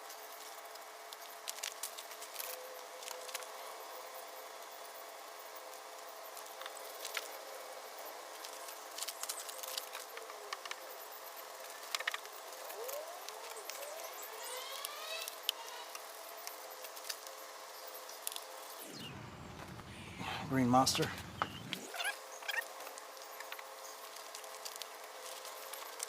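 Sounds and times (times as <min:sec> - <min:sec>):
faint steady hum: 0:00.0 - 0:26.0
quick rising squeaks: 0:12.8 - 0:15.9, 0:18.8 - 0:22.7.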